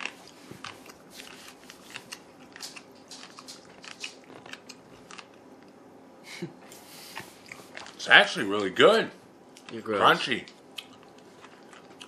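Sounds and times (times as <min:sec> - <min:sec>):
person chewing crunchy snack: 0:00.0 - 0:05.5, 0:06.8 - 0:08.0, 0:10.5 - 0:12.0.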